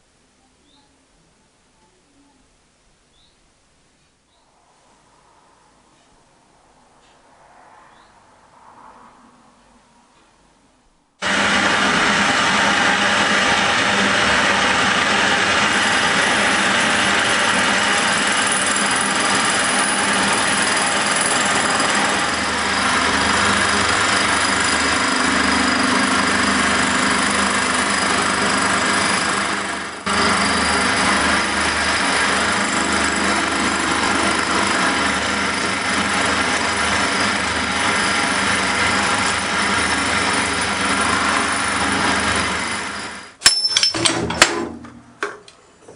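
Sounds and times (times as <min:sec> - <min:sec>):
machine tool cutting metal: 0:11.2 - 0:44.6.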